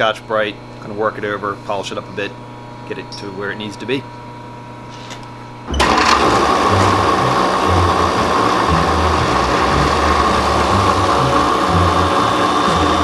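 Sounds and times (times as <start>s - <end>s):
bench grinder whining: 5.7s - 13.0s.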